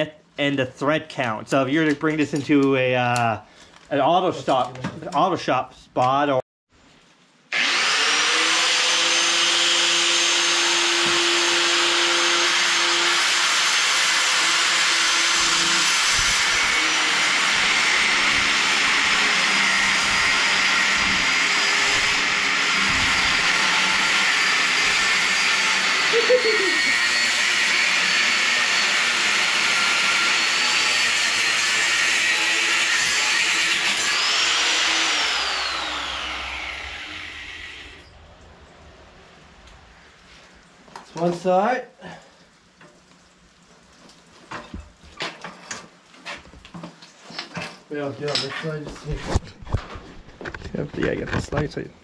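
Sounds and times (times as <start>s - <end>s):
power tool running with high whine: 7.5s - 31.1s, 33.8s - 38.1s.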